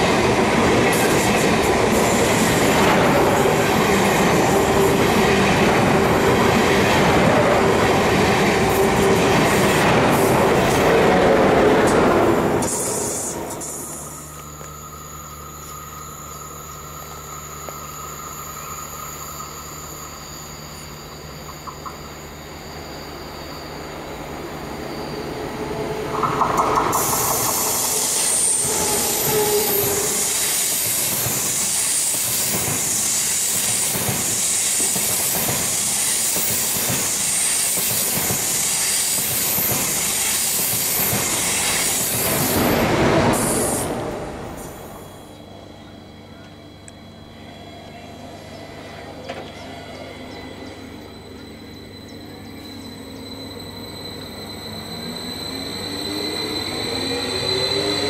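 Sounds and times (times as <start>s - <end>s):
high-speed train passing: 0.0s - 58.0s
rapid clacking of wheels on rails: 26.0s - 44.0s.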